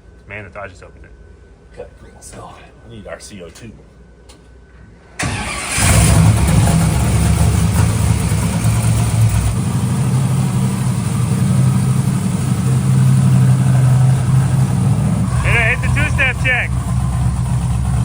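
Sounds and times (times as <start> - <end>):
starter motor cranking: 5.2 - 6.8
engine loud steady idle: 5.3 - 18.0.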